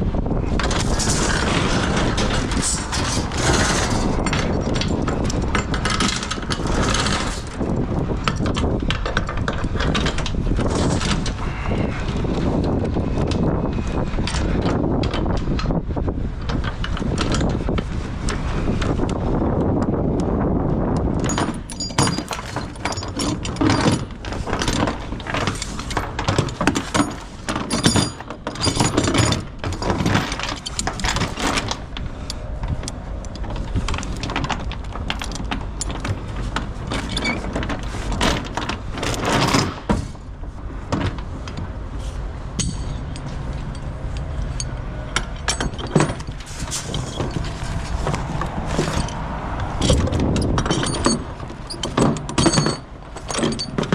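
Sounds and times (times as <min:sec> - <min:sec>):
wind on microphone: 0:00.0 - 0:53.9
chains clinking and rattling: 0:21.2 - 0:31.9, 0:42.6 - 0:53.9.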